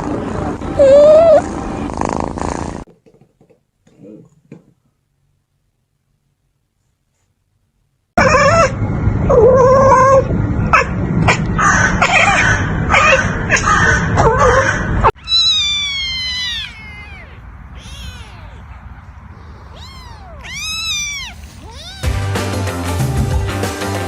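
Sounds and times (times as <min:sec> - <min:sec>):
cat meowing: 0:15.2 - 0:22.1
music: 0:22.0 - 0:24.0.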